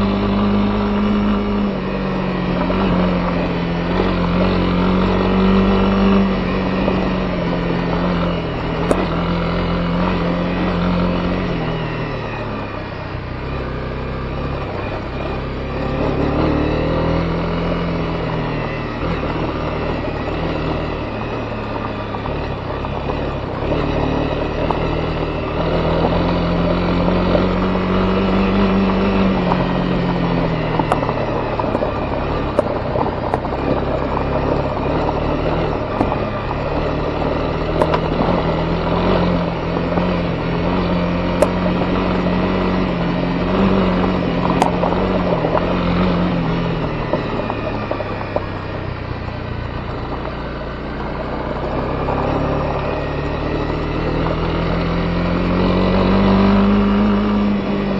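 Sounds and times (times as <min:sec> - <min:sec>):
motorcycle engine revving: 0:00.0 - 0:57.9
road and wind noise: 0:00.0 - 0:57.9.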